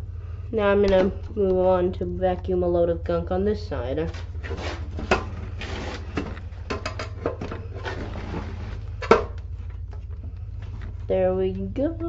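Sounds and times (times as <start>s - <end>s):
low hum: 0.0s - 12.0s
rustling: 4.0s - 11.1s
knocks and clicks: 6.2s - 7.7s.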